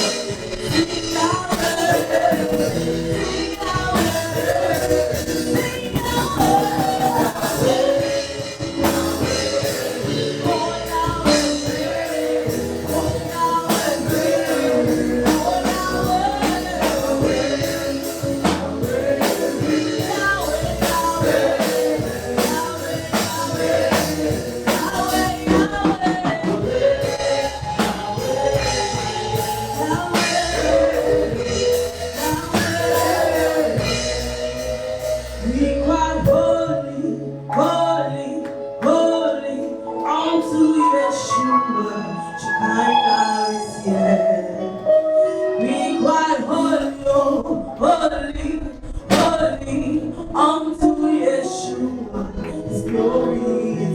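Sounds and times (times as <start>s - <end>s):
drum kit beat: 0.0s - 36.5s
voices singing over a band: 0.0s - 53.9s.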